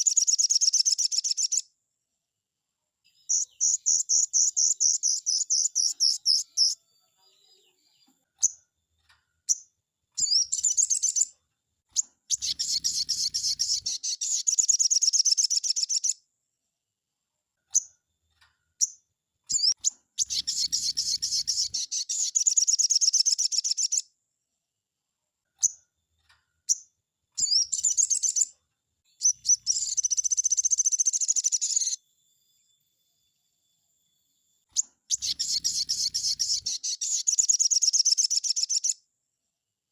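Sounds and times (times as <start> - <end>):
bird chirps: 0.0 - 1.7, 3.0 - 8.7, 9.4 - 16.2, 18.8 - 24.1, 26.6 - 32.8, 34.7 - 39.1
bird trilling: 3.3 - 6.8, 10.2 - 11.3, 12.0 - 16.2, 19.5 - 24.0, 27.4 - 28.5, 29.2 - 32.0, 34.8 - 39.0.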